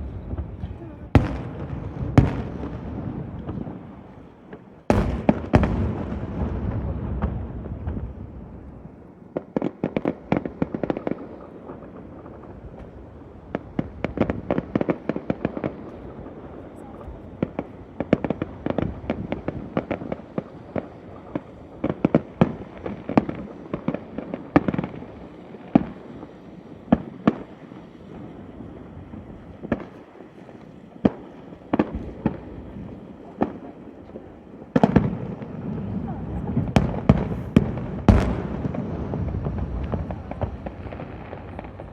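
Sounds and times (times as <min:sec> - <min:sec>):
loud firework boom: 0:00.0 - 0:03.7, 0:04.9 - 0:08.4, 0:36.4 - 0:41.9
firework rumble: 0:00.0 - 0:41.9
fireworks crackling pops: 0:00.0 - 0:41.9.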